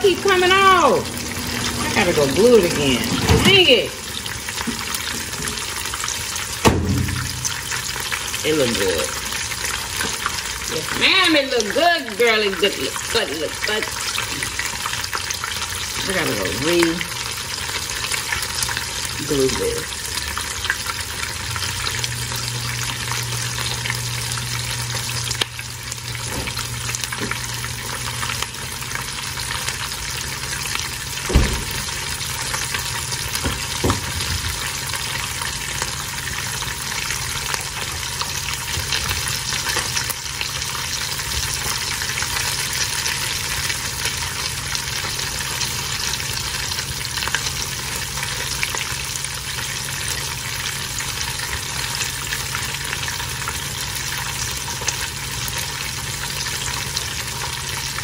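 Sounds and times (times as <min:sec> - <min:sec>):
food frying in oil: 0:00.0 - 0:58.0
dull knock: 0:31.3 - 0:31.8.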